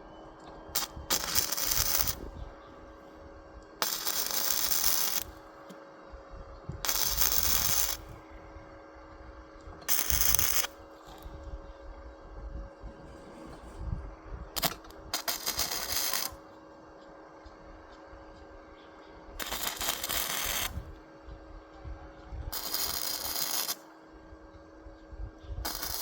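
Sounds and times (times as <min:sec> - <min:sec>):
faint steady hum: 0:00.0 - 0:26.0
hissing bursts: 0:03.8 - 0:05.3.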